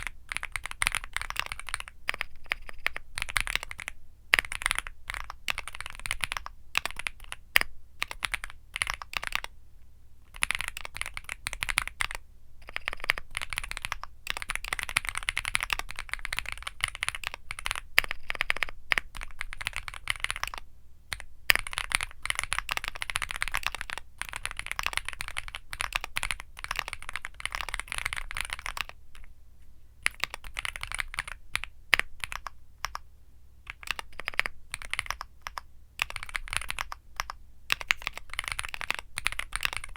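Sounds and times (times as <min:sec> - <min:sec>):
mechanical keyboard typing: 0:00.0 - 0:09.5, 0:10.3 - 0:29.3, 0:30.0 - 0:33.0, 0:33.7 - 0:39.9.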